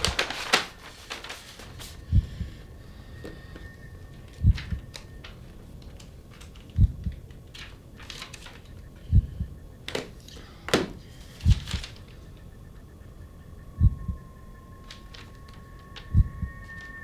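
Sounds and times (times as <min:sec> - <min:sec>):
sharp clicks and rustles: 0:00.0 - 0:02.0, 0:03.6 - 0:09.1, 0:09.8 - 0:12.5, 0:14.8 - 0:17.0
heartbeat thumps: 0:02.0 - 0:02.6, 0:06.8 - 0:07.2, 0:09.0 - 0:09.8, 0:13.6 - 0:14.3, 0:16.1 - 0:16.5.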